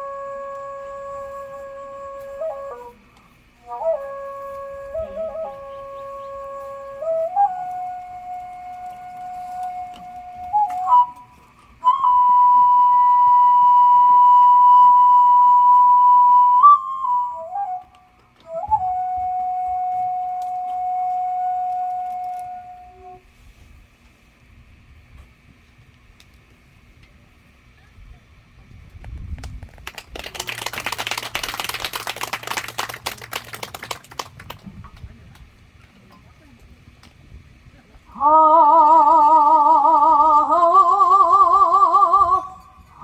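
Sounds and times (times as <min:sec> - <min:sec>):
flute playing long notes: 0:00.0 - 0:23.6, 0:38.1 - 0:43.0
audience applause: 0:29.8 - 0:34.7.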